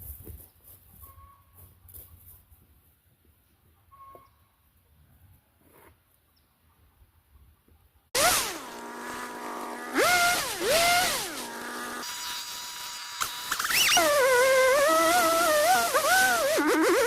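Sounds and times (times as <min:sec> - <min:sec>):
chainsaw engine revving: 0:08.2 - 0:17.0.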